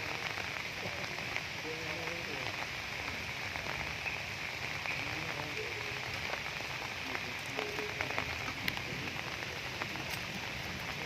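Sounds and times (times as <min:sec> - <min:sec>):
rain falling: 0:00.0 - 0:11.0
raindrops ticking on surfaces: 0:00.0 - 0:11.0.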